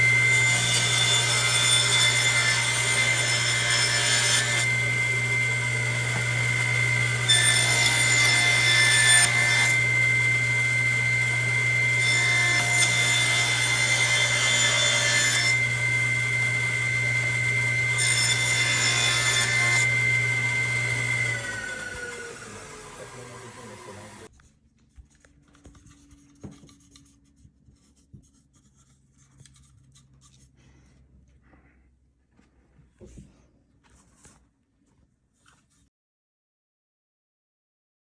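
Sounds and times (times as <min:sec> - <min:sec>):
power tool motor whine: 0:00.0 - 0:03.6, 0:04.4 - 0:24.3
power tool rasping into wood: 0:00.0 - 0:24.3.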